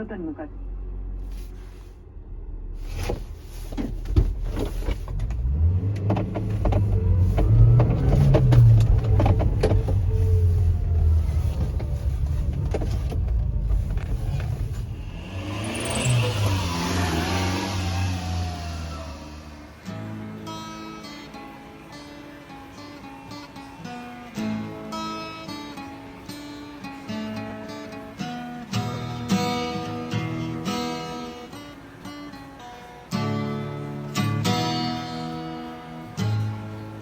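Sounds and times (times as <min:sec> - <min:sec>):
small truck engine revving: 0:05.0 - 0:21.5.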